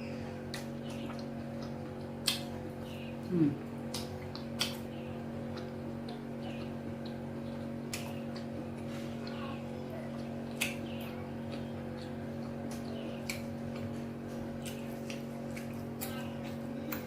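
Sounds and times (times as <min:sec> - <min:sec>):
steady electrical hum: 0:00.0 - 0:17.0
wet mouth clicks and smacks: 0:00.5 - 0:02.5, 0:03.9 - 0:04.8, 0:07.9 - 0:08.5, 0:10.5 - 0:10.8.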